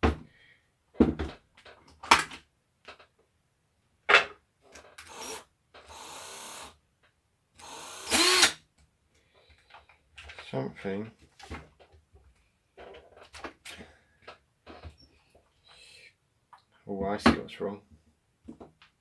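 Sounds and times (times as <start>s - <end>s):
drill motor whining: 5.0s - 6.7s, 7.6s - 8.6s.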